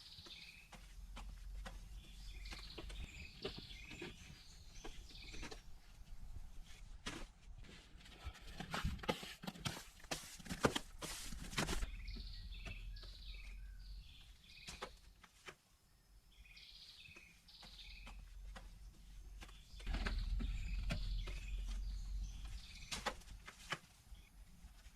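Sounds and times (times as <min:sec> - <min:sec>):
bird chirping: 0:00.0 - 0:05.9, 0:11.6 - 0:15.2, 0:15.9 - 0:23.4.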